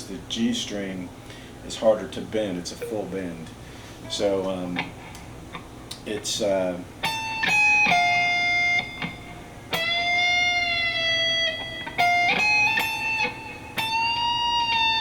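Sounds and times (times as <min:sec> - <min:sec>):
electric guitar bent notes: 0:07.0 - 0:15.0.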